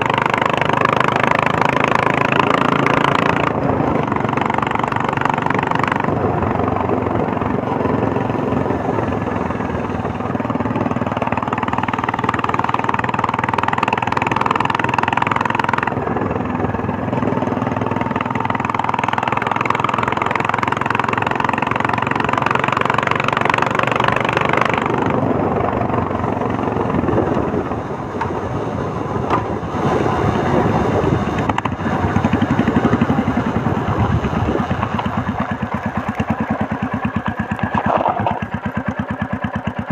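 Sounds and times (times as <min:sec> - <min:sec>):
motorcycle engine thumping: 0:29.2 - 0:29.6, 0:31.3 - 0:39.9.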